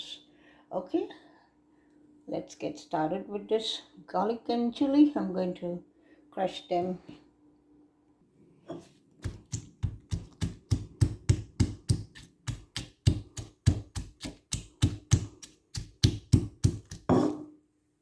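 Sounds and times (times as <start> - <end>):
garlic and chilies being crushed: 9.2 - 17.2.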